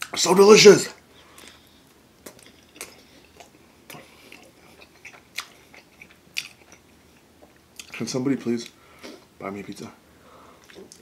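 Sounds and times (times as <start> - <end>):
person chewing pizza: 1.3 - 8.0, 10.5 - 11.0.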